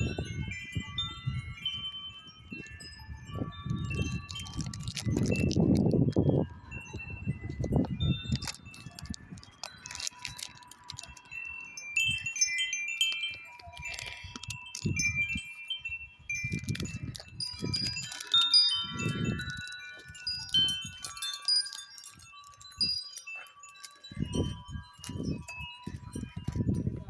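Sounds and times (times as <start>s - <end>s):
wind chimes ringing: 0.0s - 27.0s
wind rumbling on microphone: 0.0s - 27.0s.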